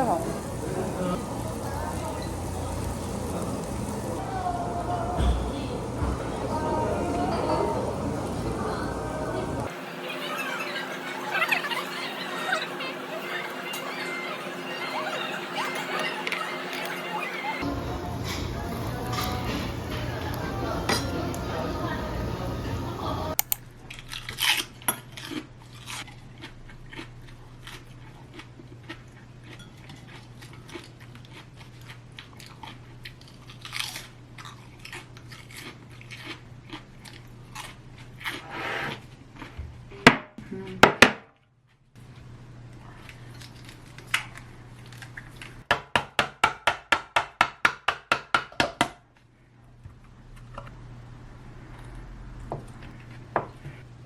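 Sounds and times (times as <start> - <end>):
steady low hum: 17.6 - 23.7
clinks of eating: 18.2 - 21.5, 28.3 - 32.8
crunchy chewing: 23.4 - 39.6, 42.0 - 45.6.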